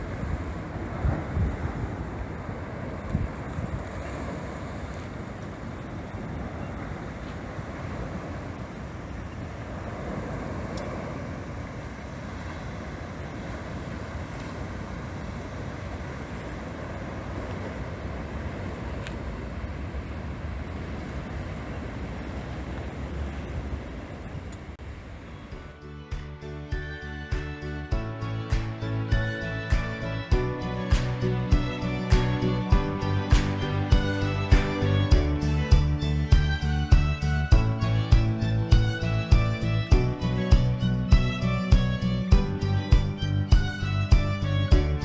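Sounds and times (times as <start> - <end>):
steady rushing noise: 0.0 - 45.0
deep rumble: 27.7 - 45.0.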